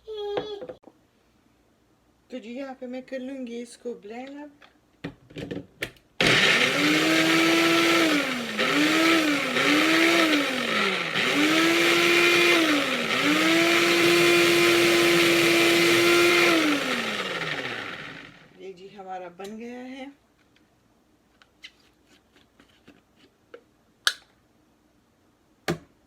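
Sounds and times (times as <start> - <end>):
electric blender grinding: 6.2 - 18.5.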